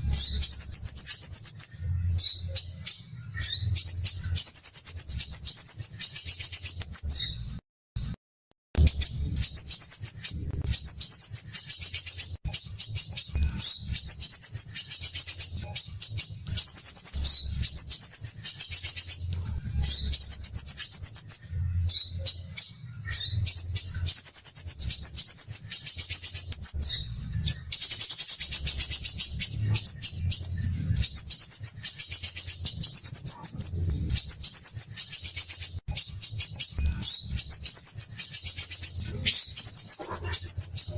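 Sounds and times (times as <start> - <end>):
bird singing high trills: 0.0 - 7.6, 8.8 - 40.9
low rumble: 8.8 - 11.1, 32.6 - 34.5.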